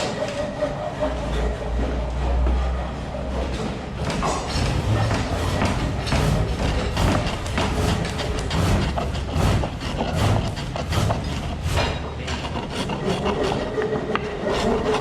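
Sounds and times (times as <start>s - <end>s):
lathe tool cutting wood: 3.9s - 15.0s.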